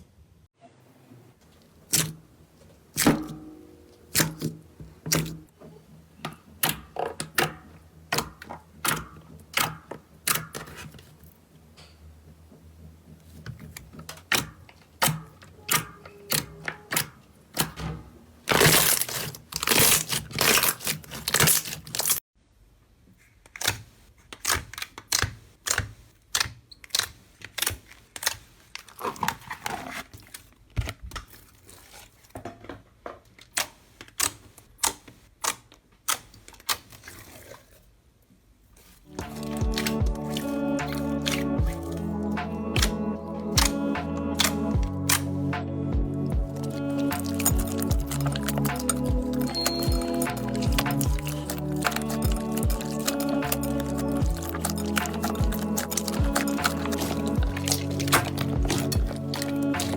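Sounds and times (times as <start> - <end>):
slime crackling and popping: 18.5 - 22.2, 38.8 - 59.9.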